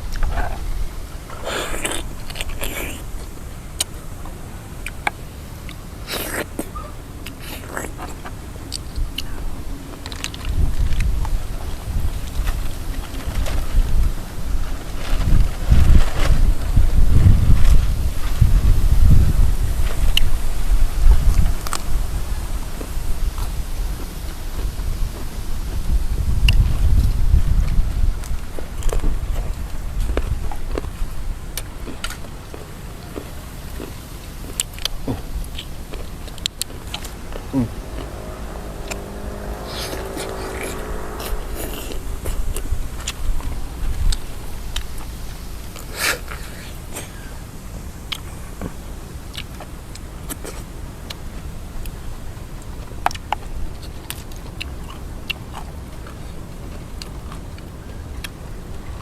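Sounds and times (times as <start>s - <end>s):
person eating with crunches: 0.0s - 11.6s, 28.2s - 58.4s
wind rumbling on microphone: 0.0s - 59.0s.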